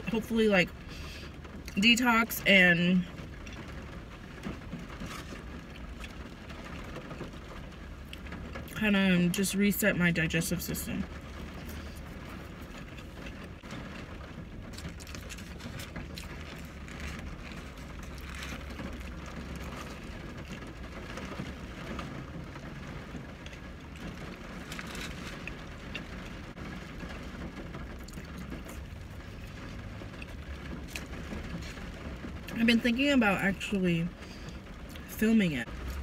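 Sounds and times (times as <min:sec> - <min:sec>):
low hum inside a car: 0:00.0 - 0:36.0
person chewing food: 0:14.7 - 0:21.3, 0:23.4 - 0:26.4.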